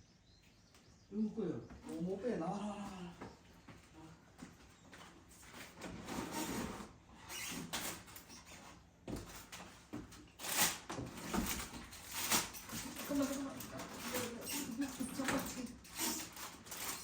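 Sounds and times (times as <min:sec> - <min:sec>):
objects scraping and rustling: 0:04.9 - 0:17.0.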